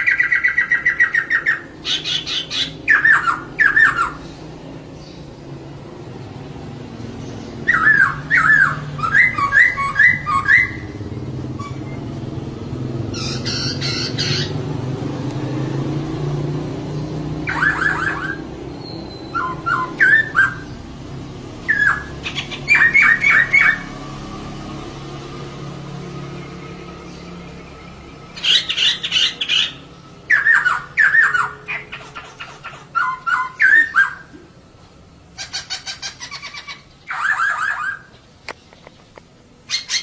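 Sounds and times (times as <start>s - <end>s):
laughingthrush chirping: 13.1s - 14.6s, 17.4s - 20.8s, 28.3s - 34.6s, 35.3s - 38.1s.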